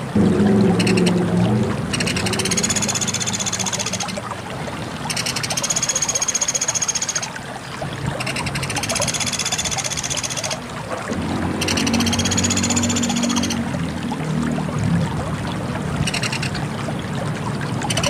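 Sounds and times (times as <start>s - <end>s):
low background rumble: 0.0s - 5.1s
woodpecker rattling trills: 2.0s - 4.2s, 5.1s - 7.4s, 8.2s - 10.6s, 11.6s - 13.6s, 16.1s - 16.6s.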